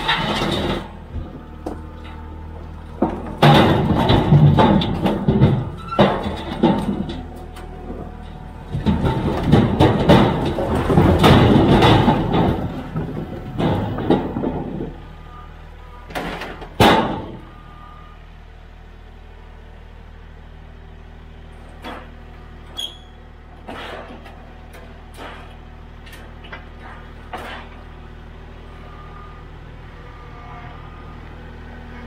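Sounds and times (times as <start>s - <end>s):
firewood tumbling into metal container: 0.0s - 2.2s, 2.9s - 15.1s
diesel tractor engine running: 0.0s - 32.0s.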